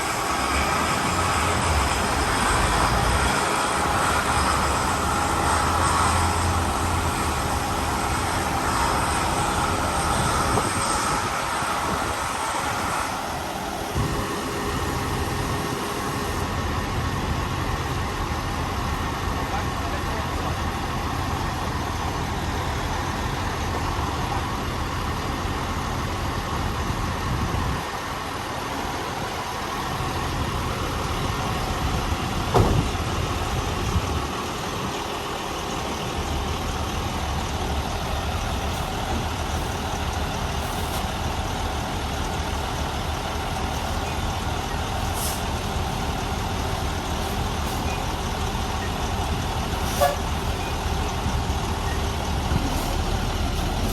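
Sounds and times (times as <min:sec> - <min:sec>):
diesel truck engine running: 0:00.0 - 0:53.9.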